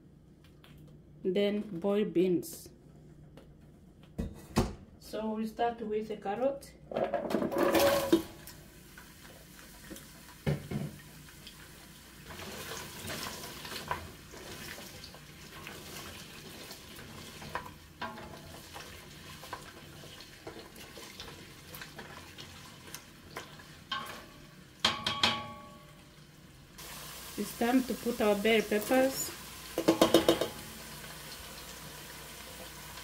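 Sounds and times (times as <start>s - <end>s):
carrots sizzling in oil: 8.4s - 24.8s, 26.0s - 33.0s
wooden spoon knocking on pot: 24.8s - 25.8s, 29.8s - 30.7s.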